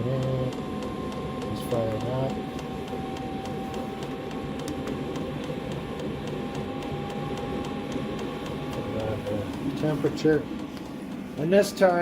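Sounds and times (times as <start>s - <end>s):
heater blower and burner noise: 0.0s - 12.0s
fuel pump ticking: 0.2s - 12.0s.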